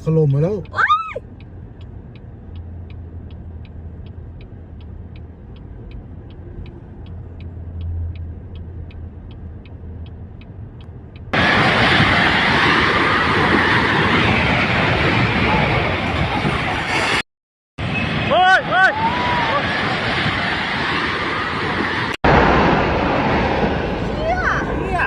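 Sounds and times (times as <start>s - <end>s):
steady light ticking: 0.0s - 11.4s
vehicle engine hum: 0.0s - 17.1s
loud rushing noise: 11.4s - 17.2s, 17.8s - 25.0s.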